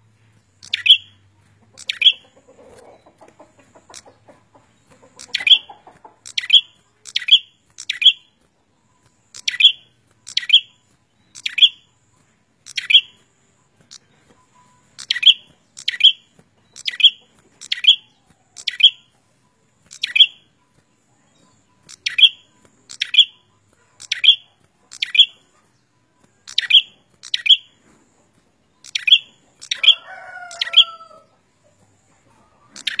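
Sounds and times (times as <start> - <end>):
bird sharp chip calls: 0.6 - 4.3, 4.9 - 8.4, 9.0 - 11.9, 12.6 - 13.2, 14.9 - 19.1, 19.8 - 20.5, 21.8 - 25.7, 26.4 - 27.8, 28.8 - 31.1, 32.7 - 33.0.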